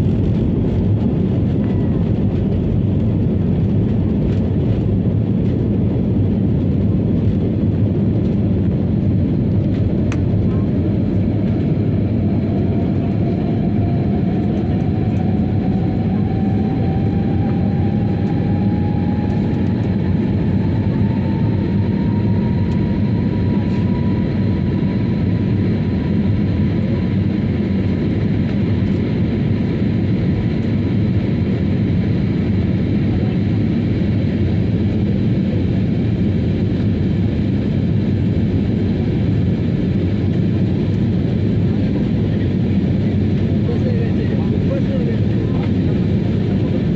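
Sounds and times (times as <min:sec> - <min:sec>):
airliner cabin rumble: 0:00.0 - 0:46.9
jet engine tone rising: 0:08.9 - 0:27.6.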